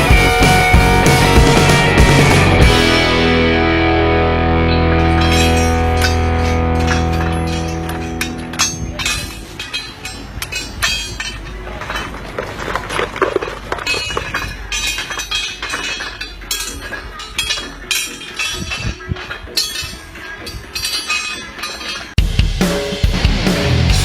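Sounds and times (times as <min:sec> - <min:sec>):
sharp knocks and clinks: 0:05.0 - 0:22.2.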